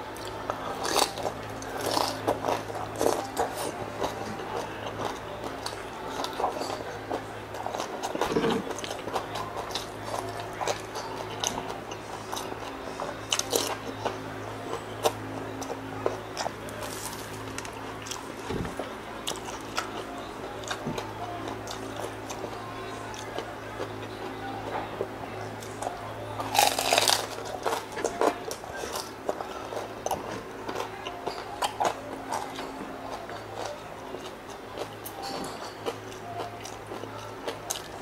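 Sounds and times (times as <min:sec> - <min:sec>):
low steady hum: 0:00.0 - 0:38.0
crispy pork skin crunching: 0:16.4 - 0:18.3, 0:26.4 - 0:34.9.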